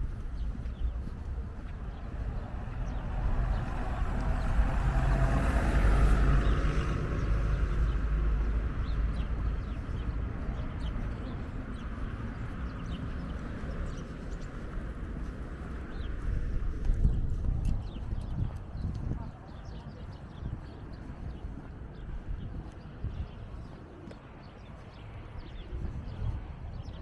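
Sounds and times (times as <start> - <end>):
wind rumble on microphone: 0.0 - 27.0
car passing by: 2.0 - 9.8.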